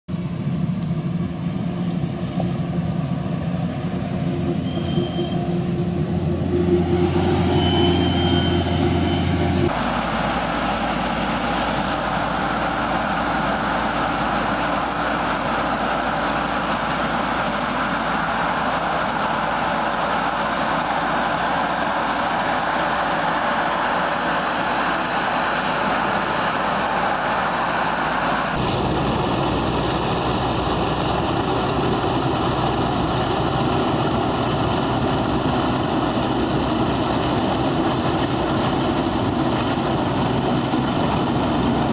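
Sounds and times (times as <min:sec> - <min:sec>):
vehicle engine running: 0:00.1 - 0:41.9.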